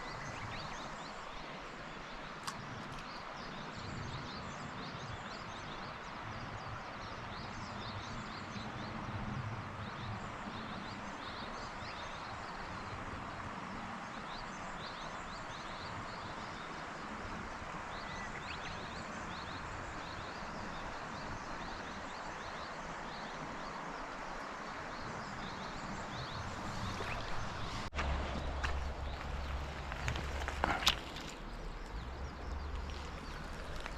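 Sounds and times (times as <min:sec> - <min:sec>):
river water rushing: 0:22.0 - 0:33.9.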